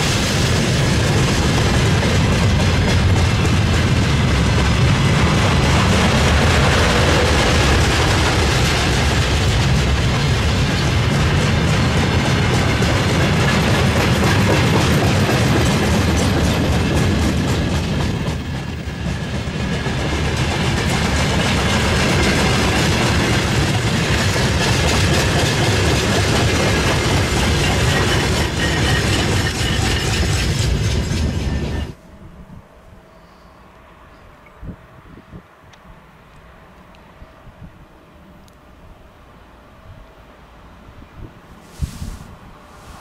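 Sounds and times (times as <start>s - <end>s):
freight train wheels clattering: 0.0s - 32.0s.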